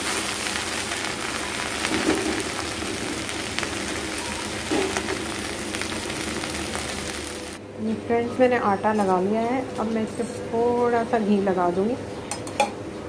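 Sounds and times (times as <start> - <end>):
okra sizzling in oil: 0.0 - 7.6.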